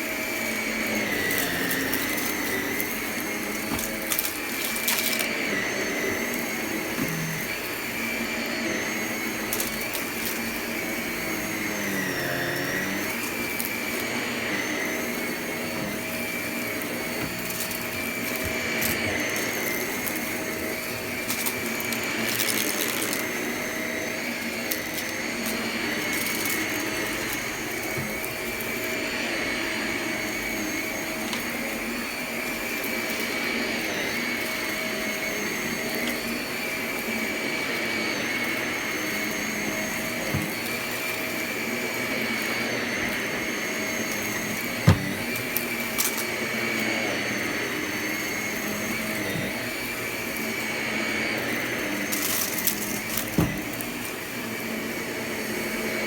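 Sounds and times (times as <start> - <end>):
vacuum cleaner whining: 0.0 - 56.0
debris clicking in vacuum: 1.0 - 5.6, 16.8 - 23.4.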